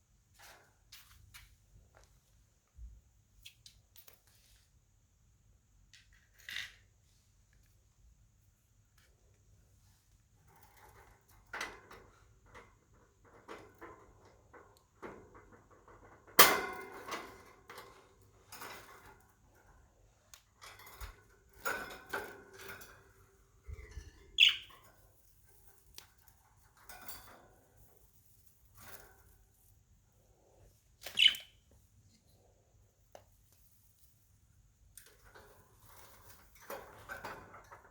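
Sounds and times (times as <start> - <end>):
budgerigars chirping and chattering: 24.4 - 24.7, 31.1 - 31.5.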